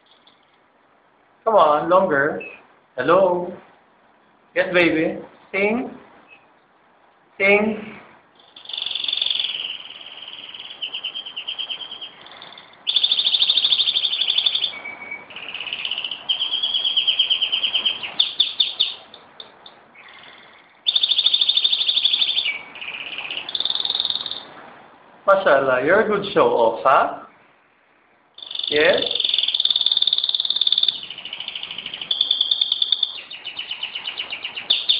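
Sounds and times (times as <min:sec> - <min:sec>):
canary singing trills: 0:06.3 - 0:06.6, 0:08.4 - 0:24.6, 0:27.3 - 0:34.9.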